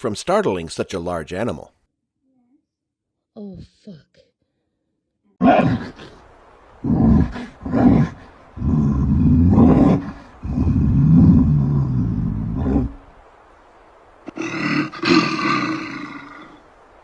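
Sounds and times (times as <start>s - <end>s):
bear roaring: 5.4s - 6.2s, 6.8s - 13.1s, 14.3s - 16.6s.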